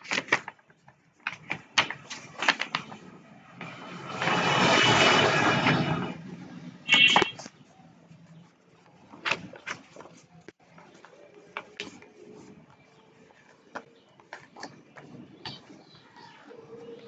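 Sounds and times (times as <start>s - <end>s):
paper being folded and creased: 0.0s - 4.8s, 7.1s - 13.5s.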